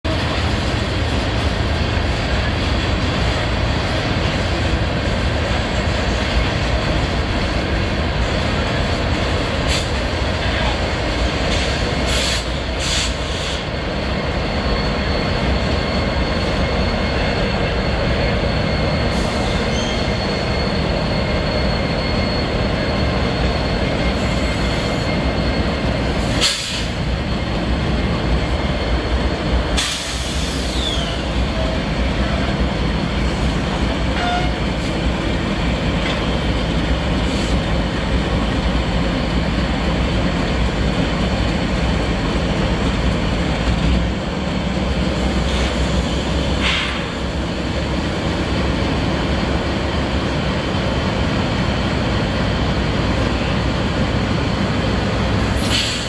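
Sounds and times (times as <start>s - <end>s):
diesel locomotive engines running: 0.0s - 56.0s
steel wheels rumbling on rail: 0.0s - 56.0s
faint thin wheel squeal: 14.6s - 26.9s, 29.9s - 31.7s.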